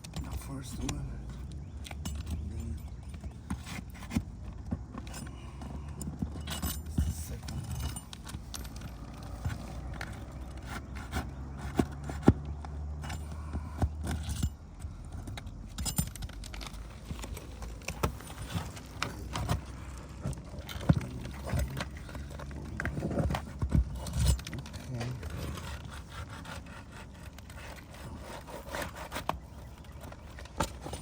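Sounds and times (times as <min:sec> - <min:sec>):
low steady hum: 0:00.0 - 0:31.0
metal tool scraping shingles: 0:16.2 - 0:31.0.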